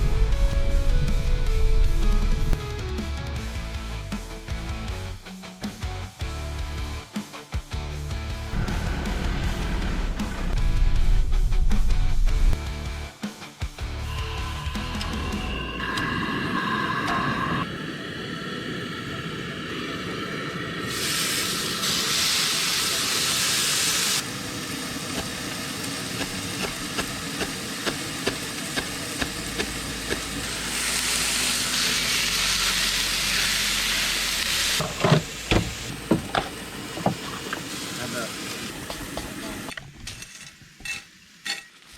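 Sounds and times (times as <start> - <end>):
food sizzling in a pan: 20.8 - 41.9.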